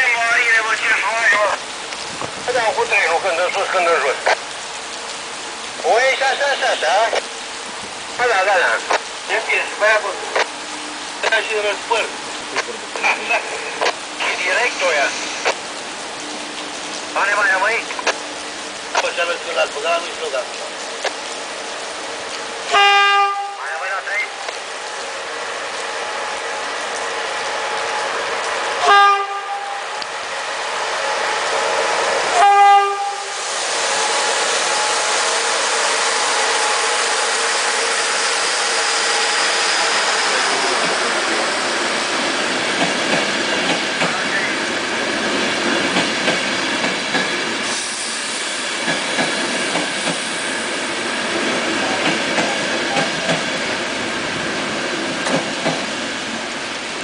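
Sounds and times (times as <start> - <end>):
train rumbling past: 0.0 - 57.0
locomotive horn blasts: 22.7 - 23.7, 28.8 - 30.0, 32.3 - 33.4
wheels clickety-clack on rail joints: 40.6 - 47.8, 48.7 - 50.4, 51.1 - 54.2, 55.0 - 56.5.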